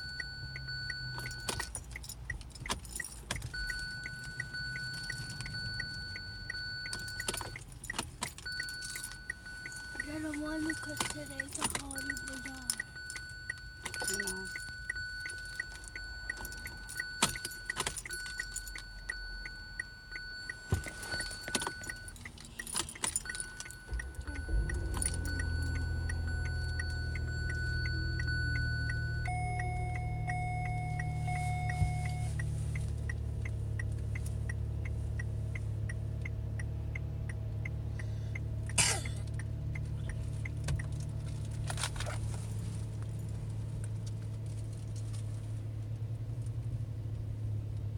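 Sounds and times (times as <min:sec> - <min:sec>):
car engine starting and idling: 0:00.0 - 0:47.9
car ticking: 0:00.0 - 0:47.9
keys jangling: 0:20.1 - 0:32.2
electronic warning tone: 0:23.2 - 0:32.4.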